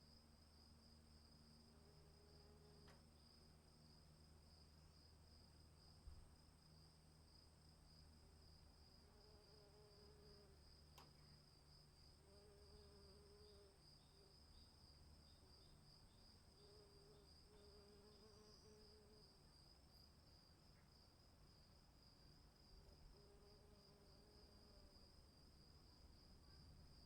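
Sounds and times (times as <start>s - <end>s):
faint click: 2.8s - 3.0s, 10.9s - 11.3s.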